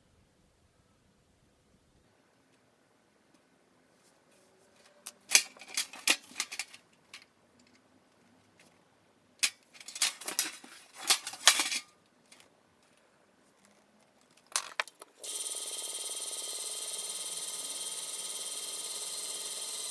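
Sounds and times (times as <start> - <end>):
thin metal parts clinking: 5.3 - 7.2, 9.4 - 12.4.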